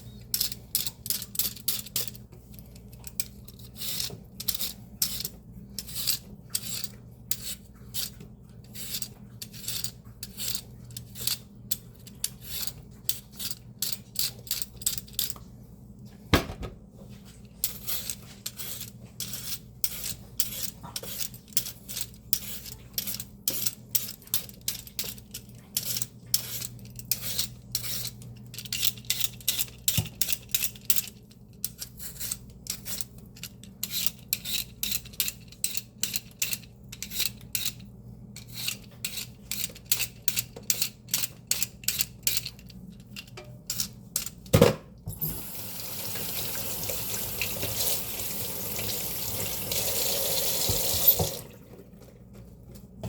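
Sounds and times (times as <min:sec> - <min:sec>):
fan humming: 0:15.5 - 0:18.4, 0:42.6 - 0:53.0
kitchen tap running: 0:45.1 - 0:52.0.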